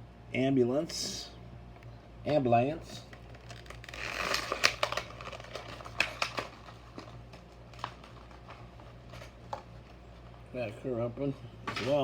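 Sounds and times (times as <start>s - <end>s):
plastic crinkling: 3.0s - 10.0s.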